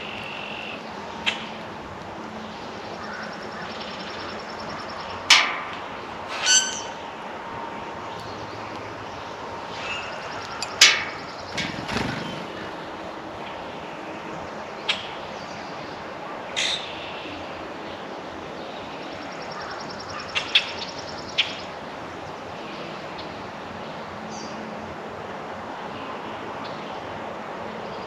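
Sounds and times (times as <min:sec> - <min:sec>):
outdoor background hiss: 0:00.0 - 0:28.0
faint high bird trill: 0:06.3 - 0:07.1
birds chirping and clicking: 0:08.1 - 0:15.6.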